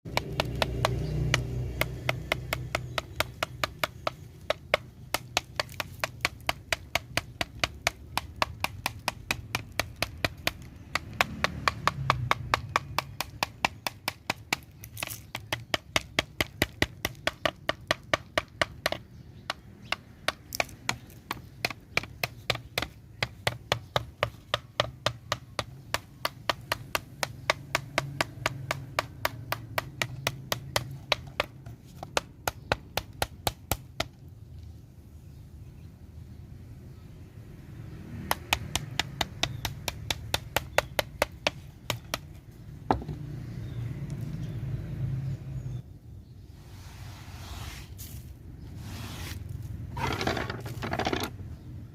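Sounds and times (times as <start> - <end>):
sharp taps or knocks: 38.3 - 43.3.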